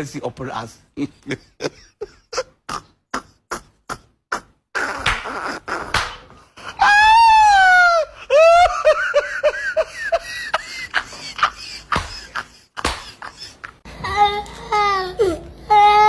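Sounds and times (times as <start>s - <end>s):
person laughing: 1.0s - 6.0s, 7.8s - 13.9s
person crying out: 6.7s - 8.7s.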